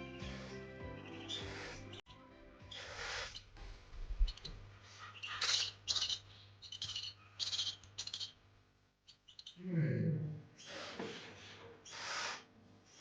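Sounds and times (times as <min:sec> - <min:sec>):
owlets hissing rasps: 0:00.0 - 0:02.0, 0:02.7 - 0:03.5, 0:04.3 - 0:08.4, 0:11.8 - 0:12.5.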